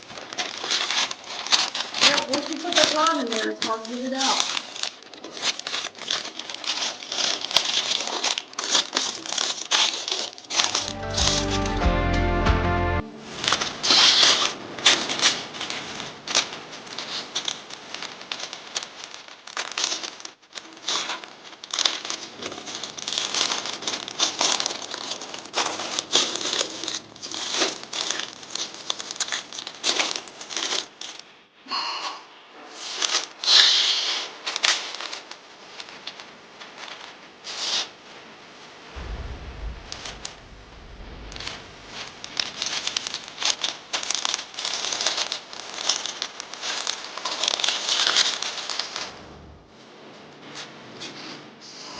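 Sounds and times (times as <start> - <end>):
masking paper crinkling: 0.0 - 11.7, 13.9 - 31.2, 42.4 - 49.1.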